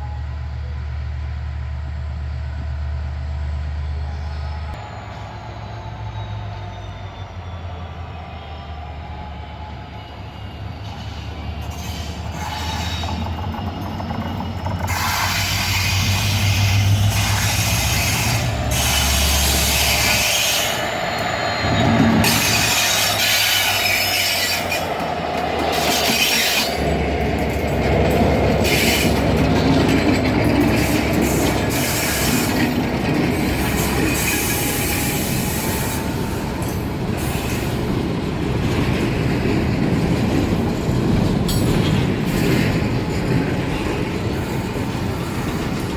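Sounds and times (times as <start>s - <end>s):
locomotive engine droning: 0.0s - 45.9s
train wheels squealing on rails: 0.0s - 45.9s
wagons clattering over track: 10.8s - 45.9s.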